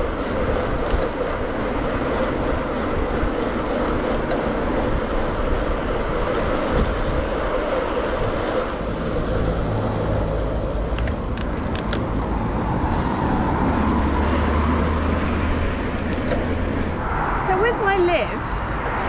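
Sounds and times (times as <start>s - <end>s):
motor vehicle low hum: 0.0s - 17.5s
wind and bicycle tyre noise: 0.0s - 19.0s.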